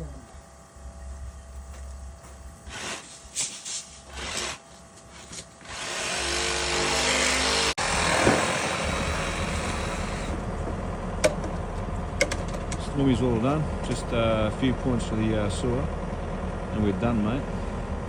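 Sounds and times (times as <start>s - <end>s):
heavy machine engine running: 7.7s - 18.0s.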